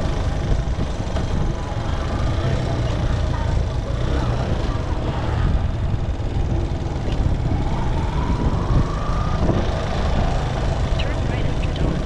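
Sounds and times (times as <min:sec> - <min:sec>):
motorcycle engine rumble: 0:00.0 - 0:12.0
wind and road noise: 0:00.0 - 0:12.0.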